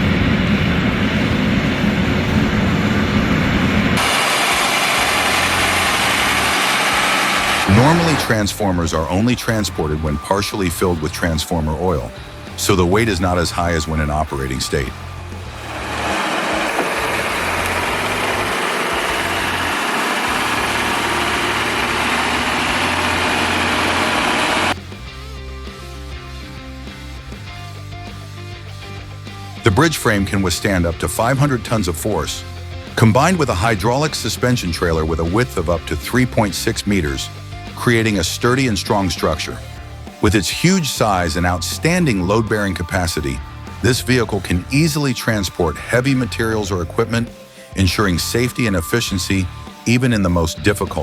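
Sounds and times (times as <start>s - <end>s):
truck engine rumbling: 0.0s - 24.8s.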